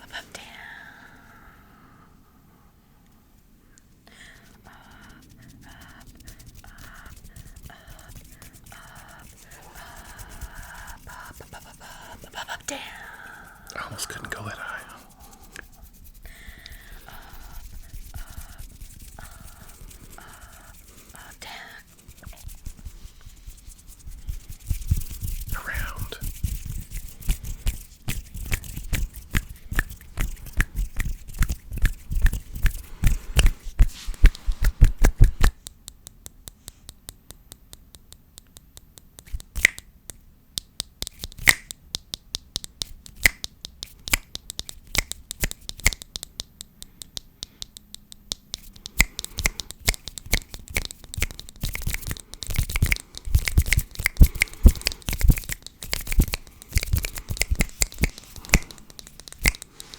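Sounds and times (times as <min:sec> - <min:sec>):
hands rubbing and brushing: 0:04.3 - 0:12.5, 0:13.4 - 0:39.8, 0:40.8 - 0:59.9
light hand taps: 0:24.2 - 0:59.9.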